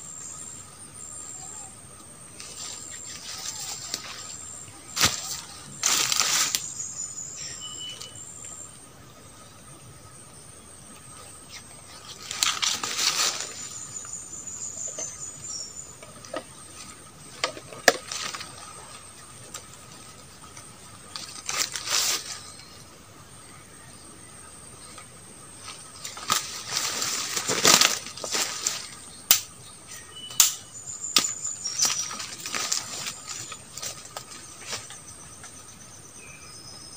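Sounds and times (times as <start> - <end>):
high insect drone: 0.0 - 36.9
twigs and leaves rustling: 2.3 - 8.6, 11.1 - 23.0, 24.7 - 35.8.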